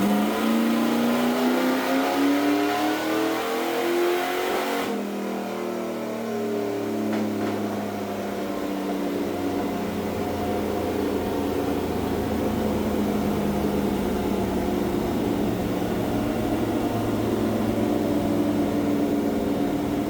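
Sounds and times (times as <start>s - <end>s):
race engine running: 8.6s - 20.0s.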